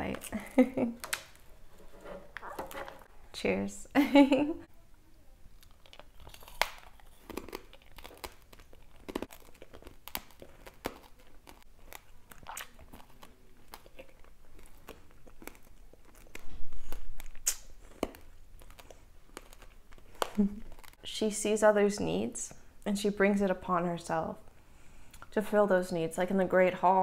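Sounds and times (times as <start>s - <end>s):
chewing candied apple crunching: 5.5s - 21.0s.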